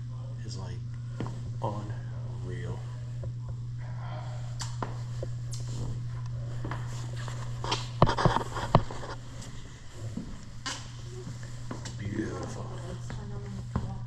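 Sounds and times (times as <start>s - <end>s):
steady low room hum: 0.0s - 14.0s
footsteps: 1.1s - 1.8s, 4.6s - 14.0s.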